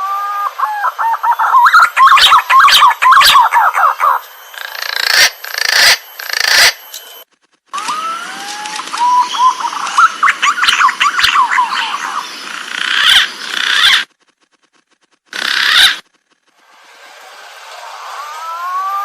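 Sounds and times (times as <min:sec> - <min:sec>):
pigeon whistling call: 0:00.0 - 0:06.7, 0:07.8 - 0:12.2.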